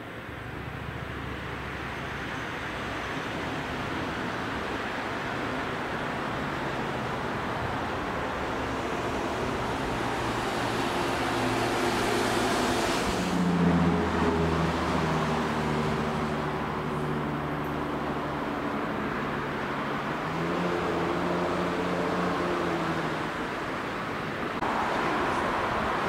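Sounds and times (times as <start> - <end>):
train rushing past: 8.5 - 16.2.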